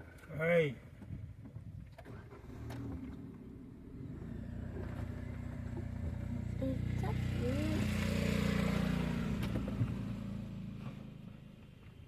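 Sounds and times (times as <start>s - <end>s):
vehicle engine humming: 2.5s - 12.0s.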